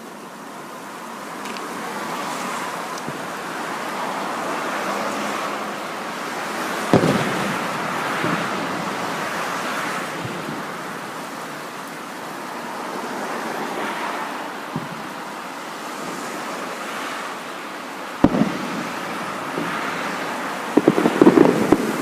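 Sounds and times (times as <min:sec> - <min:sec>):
steady rushing noise: 0:00.0 - 0:22.0
firework bangs: 0:01.4 - 0:11.8, 0:14.7 - 0:15.4, 0:18.1 - 0:22.0.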